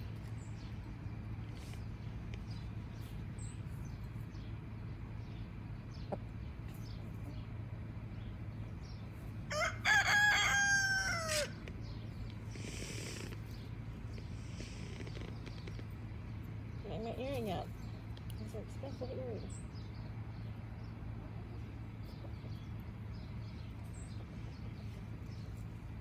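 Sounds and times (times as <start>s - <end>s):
rooster crowing: 9.5s - 11.6s.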